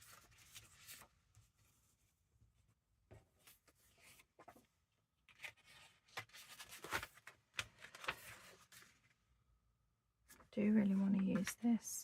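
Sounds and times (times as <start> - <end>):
paper rustling and sliding: 0.0 - 2.0, 5.3 - 9.2.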